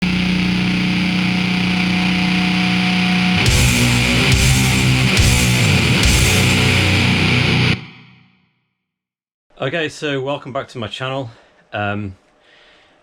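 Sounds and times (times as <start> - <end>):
distorted electric bass riff: 0.0 - 8.2.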